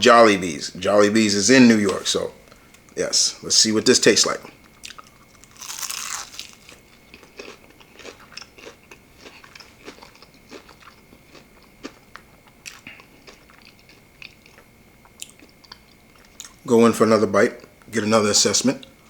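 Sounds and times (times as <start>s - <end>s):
biting crunchy fried chicken: 4.7s - 16.6s
close-up chewing: 4.7s - 16.6s.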